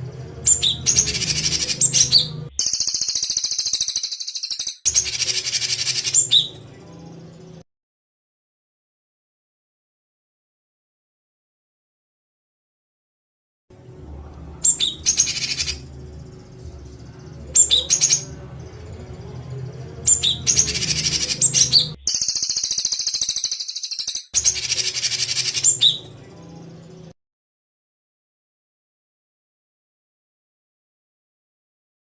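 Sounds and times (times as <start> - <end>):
low recording hum: 0.0 - 2.6, 13.8 - 22.1
recorded songbird harsh notes: 0.0 - 7.5, 14.6 - 27.0.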